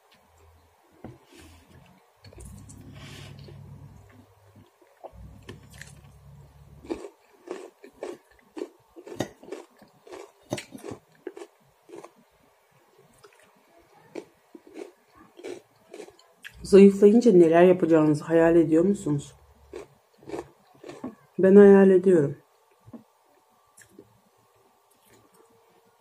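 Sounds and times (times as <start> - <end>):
person chewing crunchy food: 1.4 - 12.2, 14.1 - 16.6, 19.6 - 21.2
low hum: 1.6 - 7.0.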